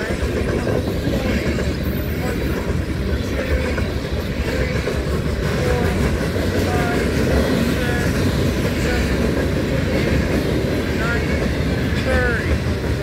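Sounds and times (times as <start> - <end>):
freight train rolling past: 0.0 - 13.0.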